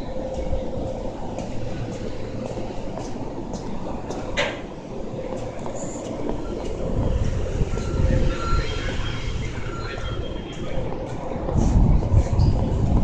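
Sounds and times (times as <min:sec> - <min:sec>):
faint footsteps: 0:00.0 - 0:08.3
low train rumble: 0:00.0 - 0:13.0.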